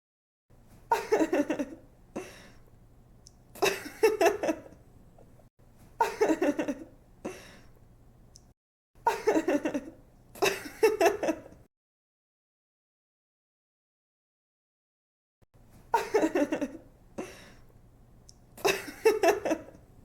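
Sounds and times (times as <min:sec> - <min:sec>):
woman giggling: 0:00.9 - 0:02.3, 0:03.6 - 0:04.8, 0:06.0 - 0:06.9, 0:09.1 - 0:11.6, 0:15.9 - 0:17.3, 0:18.6 - 0:19.8.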